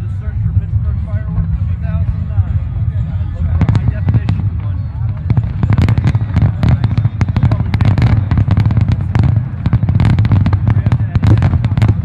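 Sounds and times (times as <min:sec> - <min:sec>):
deep rumble of booms: 0:03.5 - 0:12.0
fireworks cracks and pops: 0:05.1 - 0:12.0.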